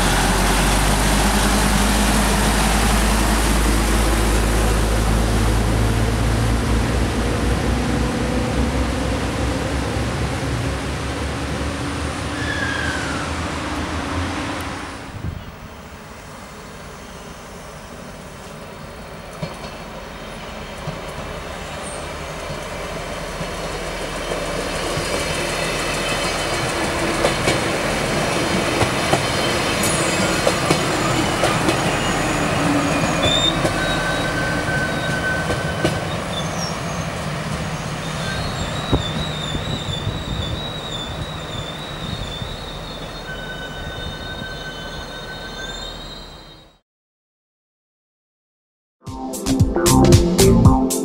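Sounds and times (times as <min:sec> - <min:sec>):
train running past: 0:00.0 - 0:46.4
high wheel squeal: 0:12.3 - 0:13.5, 0:28.2 - 0:46.8.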